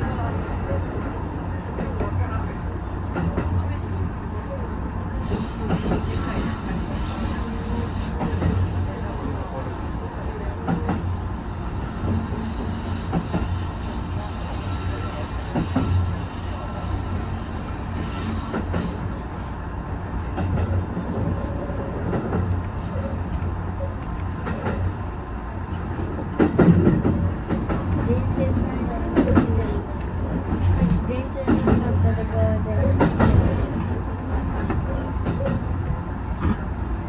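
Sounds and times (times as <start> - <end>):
train rumble from inside: 0.0 - 37.0
high wheel squeals: 5.3 - 8.4, 12.0 - 19.4.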